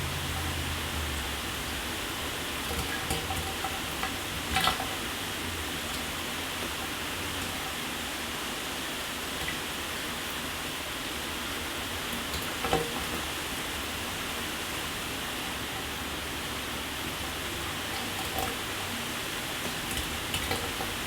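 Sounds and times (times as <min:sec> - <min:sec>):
water drips: 0:17.1 - 0:21.0.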